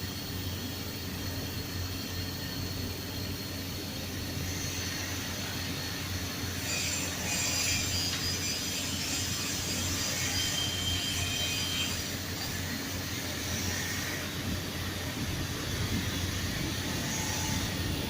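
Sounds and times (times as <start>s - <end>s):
arc welding crackling hiss: 4.5s - 18.0s.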